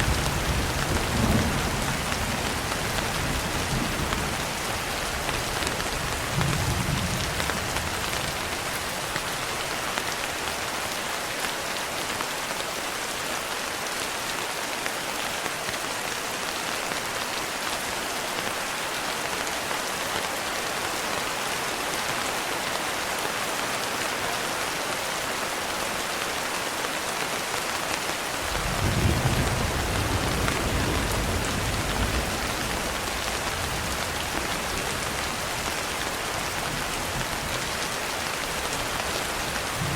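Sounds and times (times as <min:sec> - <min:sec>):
rain on a window: 0:00.0 - 0:39.9
thunder rumbling: 0:28.4 - 0:35.8, 0:39.4 - 0:39.9.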